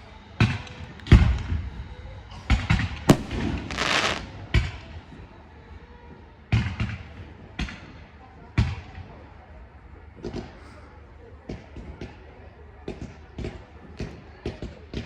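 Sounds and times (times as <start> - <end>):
fireworks bangs: 3.1 - 4.4
fizzing crackle of fireworks: 3.1 - 4.6.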